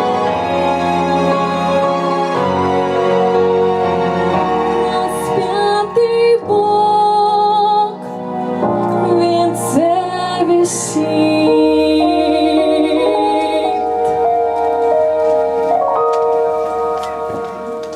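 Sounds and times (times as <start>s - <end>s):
instrumental accompaniment: 0.0s - 17.9s
woman singing church song: 4.8s - 8.1s, 8.8s - 14.2s.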